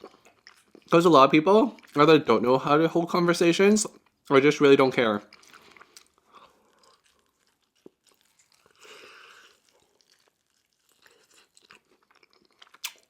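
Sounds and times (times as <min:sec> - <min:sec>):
chewing food: 0:00.0 - 0:02.1, 0:05.2 - 0:13.0
small crunches: 0:05.3 - 0:13.0
mouth clicks: 0:12.8 - 0:13.0.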